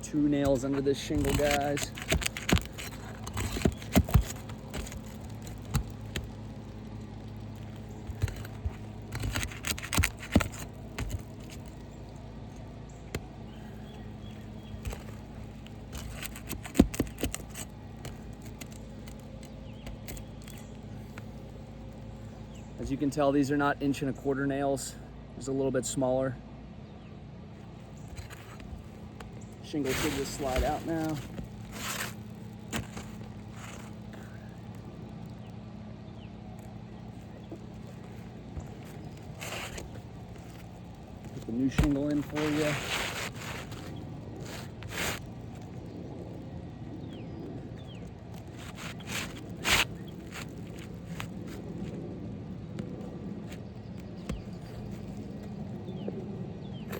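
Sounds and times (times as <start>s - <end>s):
shingle scraping: 0.0s - 23.1s, 27.6s - 56.9s
steady low hum: 0.0s - 56.9s
nails scraping and clicking: 0.3s - 21.6s.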